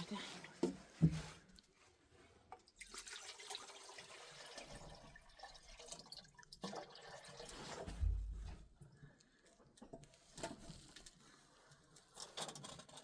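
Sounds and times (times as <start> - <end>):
water dripping and trickling: 2.5 - 10.1.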